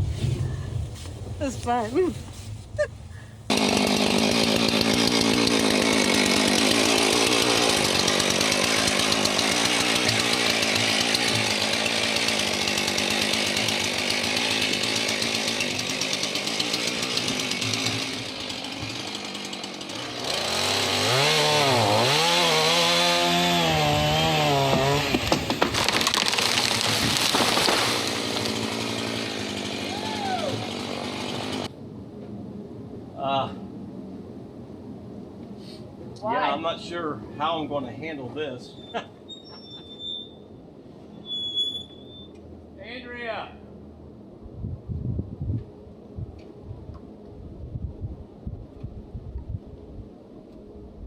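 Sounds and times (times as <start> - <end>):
chainsaw running and cutting: 3.5 - 31.7.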